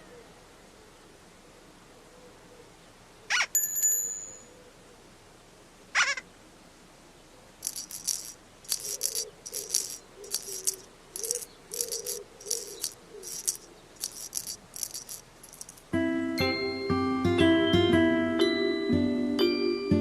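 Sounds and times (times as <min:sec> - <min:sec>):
shaker rattling: 0:07.6 - 0:16.0.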